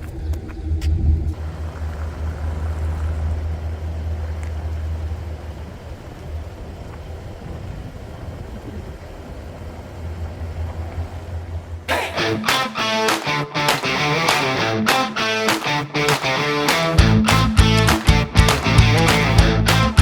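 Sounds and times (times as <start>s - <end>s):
low road rumble: 0.0s - 20.0s
van driving: 1.3s - 12.1s, 13.6s - 20.0s.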